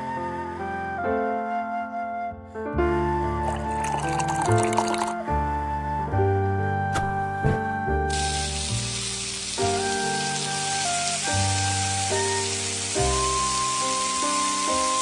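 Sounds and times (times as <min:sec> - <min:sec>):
food frying in hot oil: 0:08.1 - 0:15.0.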